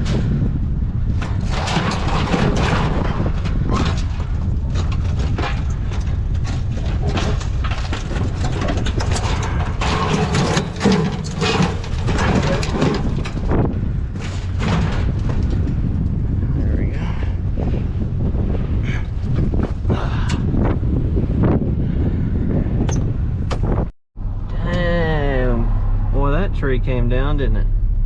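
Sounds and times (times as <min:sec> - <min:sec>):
vehicle engine and road rumble: 0:00.0 - 0:28.0
knocks and rattles: 0:01.0 - 0:16.7.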